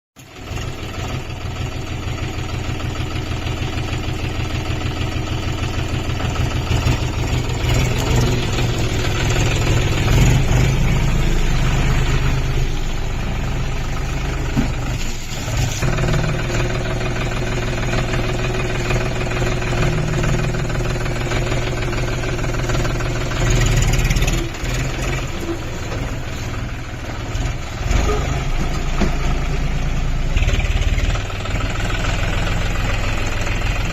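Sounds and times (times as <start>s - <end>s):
diesel tractor engine running: 0.2s - 33.9s.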